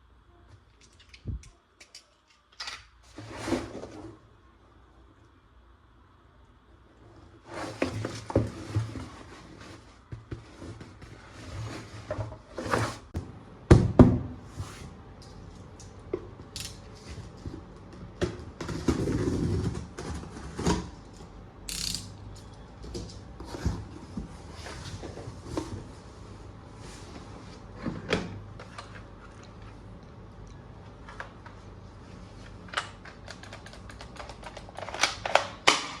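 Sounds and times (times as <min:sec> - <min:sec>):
plastic parts clicking and clacking: 0:00.8 - 0:02.9, 0:32.7 - 0:36.0.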